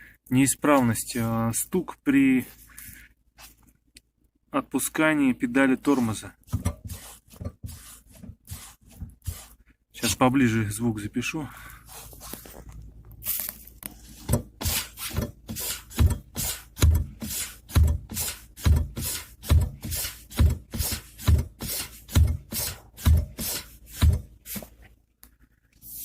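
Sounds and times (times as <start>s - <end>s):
brake booster thumping: 14.2s - 24.4s.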